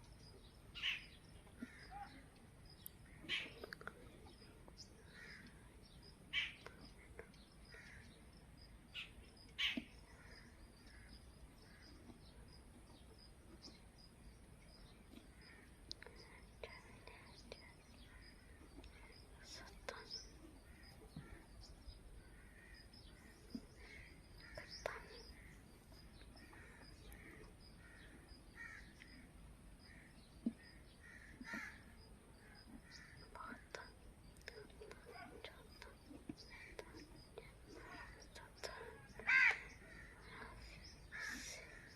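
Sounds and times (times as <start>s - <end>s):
faint bird calls: 0.4s - 13.8s, 14.7s - 41.9s
harsh bird calls: 0.8s - 2.3s, 37.7s - 41.9s.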